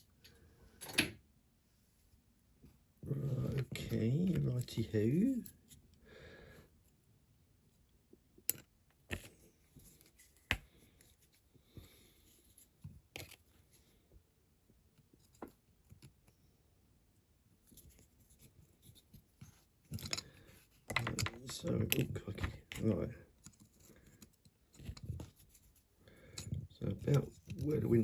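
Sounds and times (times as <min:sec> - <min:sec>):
quiet scraping: 0:03.0 - 0:05.8.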